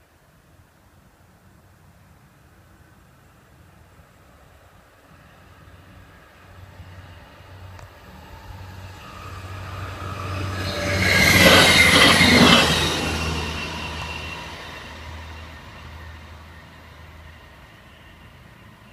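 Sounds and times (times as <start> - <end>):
diesel train passing: 4.2 - 18.9.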